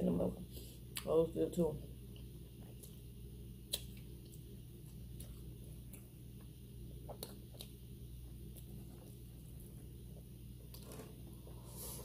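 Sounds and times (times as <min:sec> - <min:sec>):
low electrical hum: 0:00.0 - 0:12.0
mouth clicks and smacks chewing: 0:03.7 - 0:07.8.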